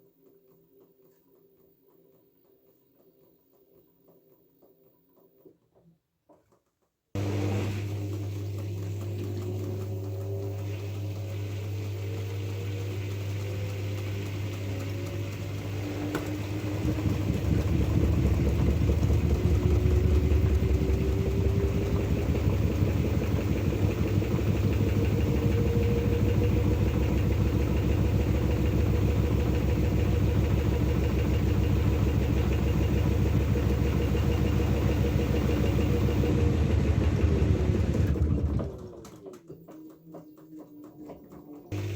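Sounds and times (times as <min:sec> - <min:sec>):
washing machine spinning: 0:07.2 - 0:39.4, 0:41.2 - 0:41.9.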